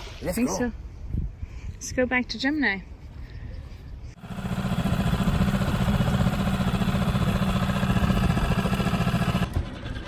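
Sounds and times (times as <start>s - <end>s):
outboard motor running: 4.2s - 10.0s.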